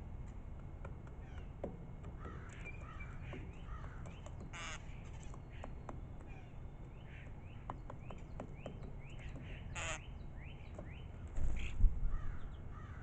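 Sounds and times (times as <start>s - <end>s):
harsh rasping bird call: 3.7s - 4.9s, 9.5s - 10.1s
songbird chirping: 5.9s - 11.2s.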